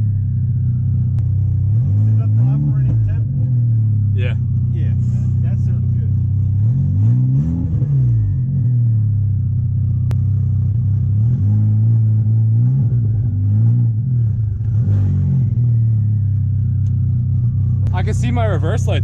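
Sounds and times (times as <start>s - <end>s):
car engine idling: 0.0s - 6.7s, 8.2s - 11.3s, 15.4s - 19.0s
engine revving: 0.0s - 19.0s.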